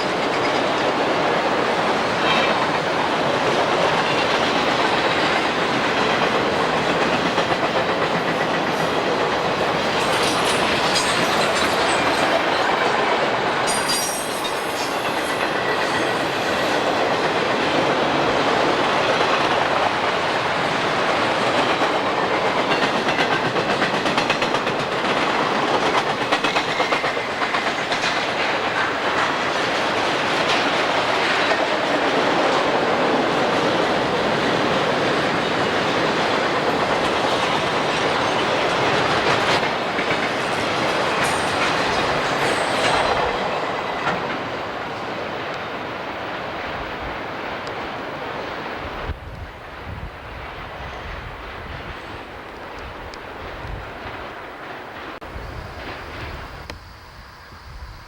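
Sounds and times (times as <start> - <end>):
train clicking over rail joints: 0.0 - 48.0
high-pitched metallic squeal: 13.6 - 16.9.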